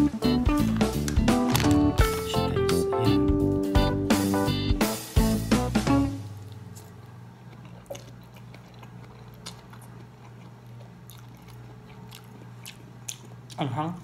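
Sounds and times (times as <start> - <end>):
person chewing and slurping noodles: 6.4 - 13.6.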